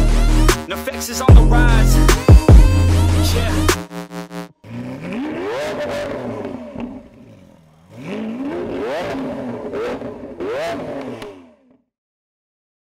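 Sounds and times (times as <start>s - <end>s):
sports car engine revving: 1.2s - 11.8s
exhaust cracks: 4.6s - 11.8s.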